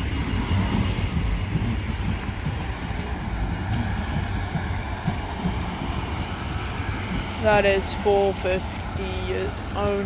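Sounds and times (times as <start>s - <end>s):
train wheels rumbling on track: 0.0s - 10.0s
high-pitched train squeal: 1.6s - 2.8s.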